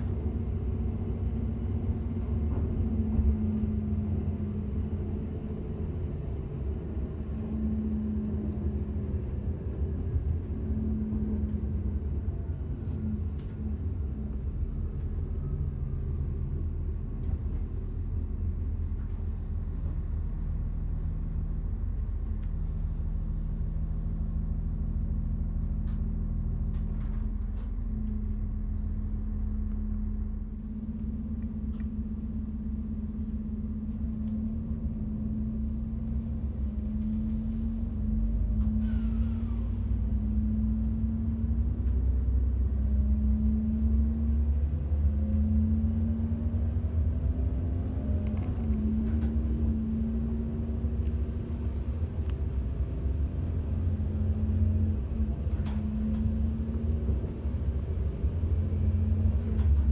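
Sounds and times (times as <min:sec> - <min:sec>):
engine hum: 0:00.0 - 0:59.9
train interior rumble: 0:00.0 - 0:59.9.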